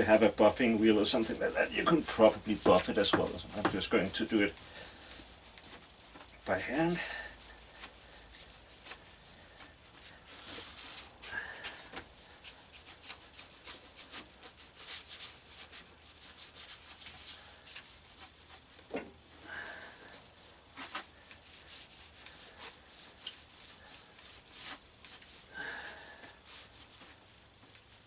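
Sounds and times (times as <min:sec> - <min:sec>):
rag scrubbing on saw blade: 0:00.0 - 0:05.2.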